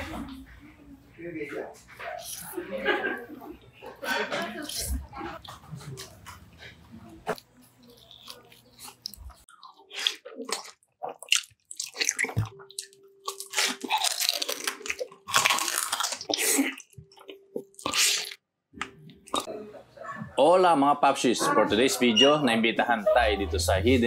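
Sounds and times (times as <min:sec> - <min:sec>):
chewing and crunching crisp food: 0:03.8 - 0:19.5.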